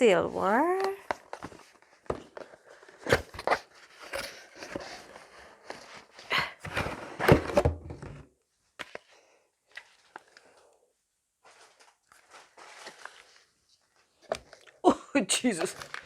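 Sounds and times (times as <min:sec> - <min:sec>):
wrapping rustling: 0:11.4 - 0:14.8, 0:15.5 - 0:16.0.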